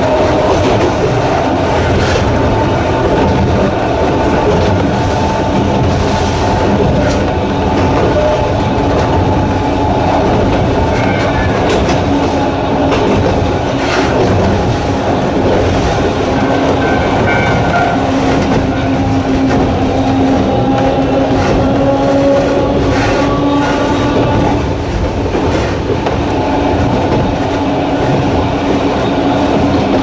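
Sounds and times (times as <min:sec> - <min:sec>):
electric train rumbling: 0:00.0 - 0:30.0
train motor hum: 0:00.0 - 0:30.0
wheels clicking on rails: 0:00.0 - 0:30.0.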